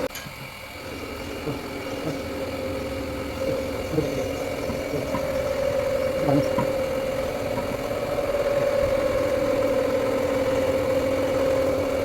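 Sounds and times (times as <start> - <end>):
machine motor humming: 0.0 - 12.0
faint knocks: 3.4 - 8.0.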